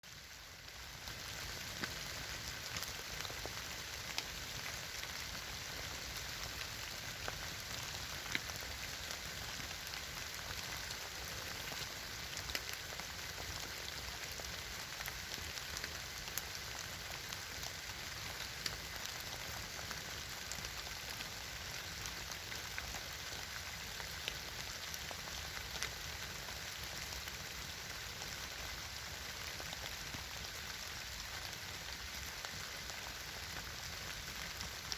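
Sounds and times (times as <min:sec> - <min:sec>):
campfire crackling and popping: 0:00.1 - 0:34.9.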